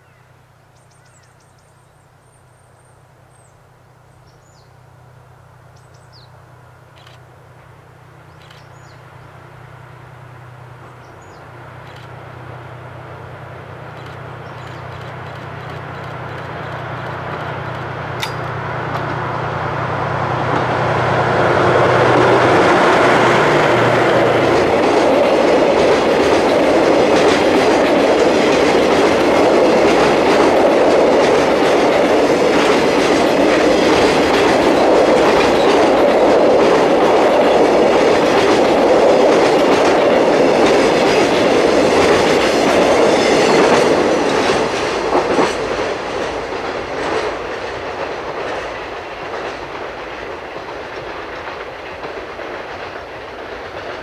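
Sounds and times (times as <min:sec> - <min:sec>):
locomotive engine hum: 0:03.0 - 0:54.0
train wheels rumbling: 0:05.4 - 0:54.0
wheels clacking over rail joints: 0:13.6 - 0:19.3, 0:21.4 - 0:54.0.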